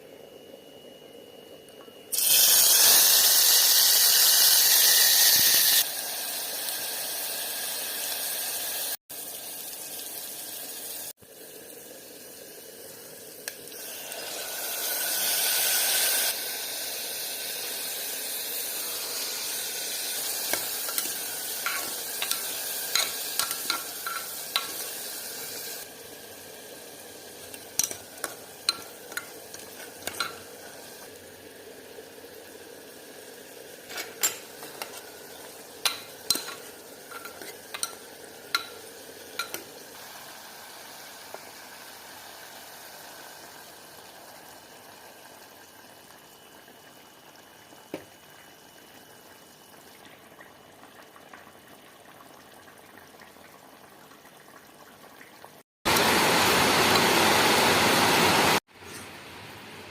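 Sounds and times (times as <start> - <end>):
food sizzling in a pan: 2.1 - 59.9
utensil clicking against pan: 20.5 - 24.8.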